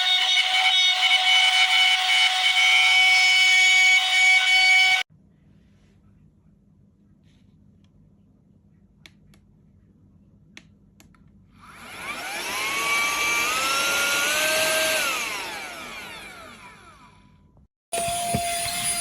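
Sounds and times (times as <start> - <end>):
small motor whining: 11.6 - 17.2, 18.0 - 19.0.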